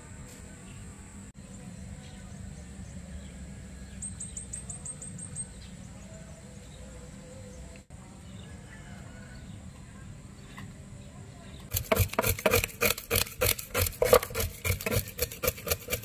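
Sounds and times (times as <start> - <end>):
bird chirping: 1.8 - 7.7.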